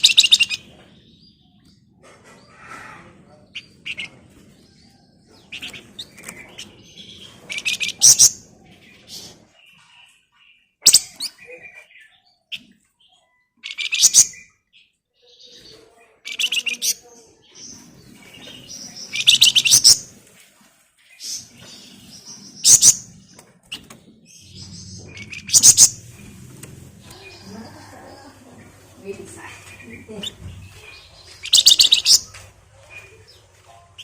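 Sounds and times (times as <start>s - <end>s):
soft bird chirps: 21.0s - 34.0s.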